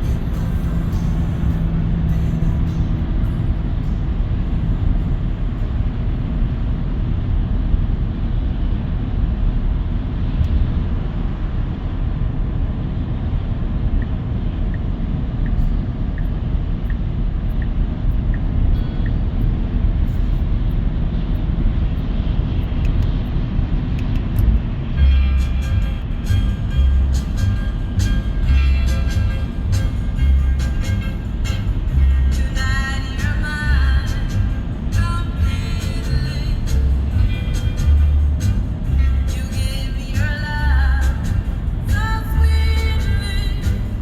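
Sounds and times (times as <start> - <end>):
tyre and road noise: 0.0 - 44.0
faint regular ticking: 14.0 - 23.4.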